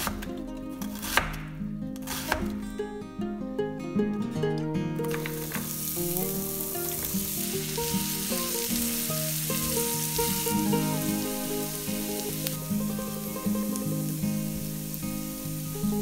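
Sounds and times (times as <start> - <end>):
light background music: 2.0 - 16.0
onions sizzling in oil: 5.1 - 16.0.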